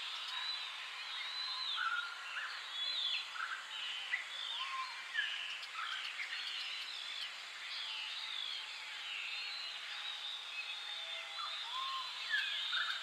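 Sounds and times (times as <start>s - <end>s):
birds singing and calling: 0.0s - 8.7s, 9.3s - 13.0s.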